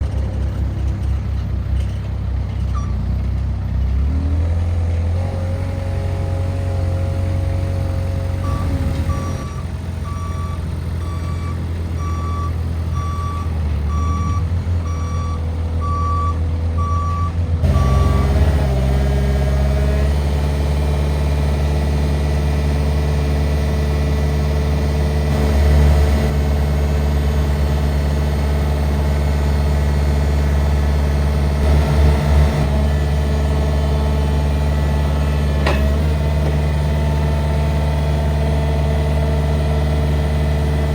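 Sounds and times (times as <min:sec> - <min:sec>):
forklift engine running: 0:00.0 - 0:40.9
reversing alarm beeping: 0:08.4 - 0:18.7.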